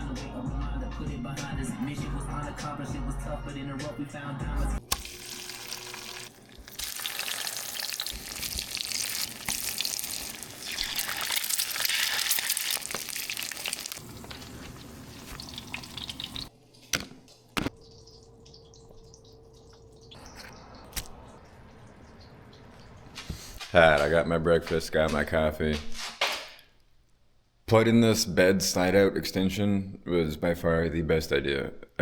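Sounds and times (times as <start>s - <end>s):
food sizzling in a pan: 4.9s - 16.5s.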